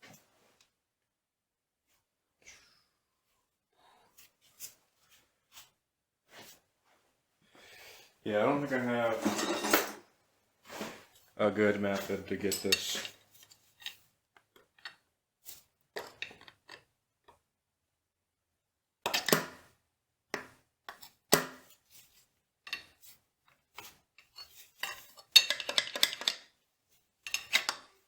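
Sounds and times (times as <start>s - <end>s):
metal tools clinking and clattering: 9.0s - 10.0s, 11.9s - 14.0s, 24.2s - 26.4s, 27.2s - 27.8s.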